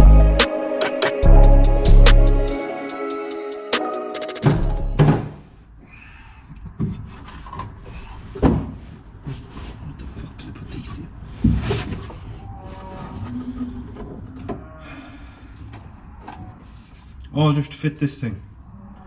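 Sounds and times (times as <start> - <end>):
loud thump: 4.5 - 5.4.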